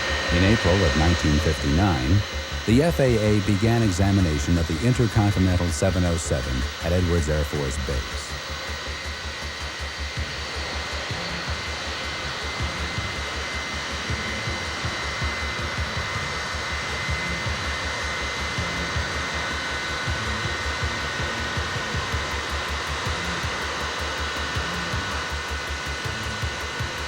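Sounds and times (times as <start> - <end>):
high turbine whine: 0.0 - 27.0
jet engines rushing: 0.0 - 27.0.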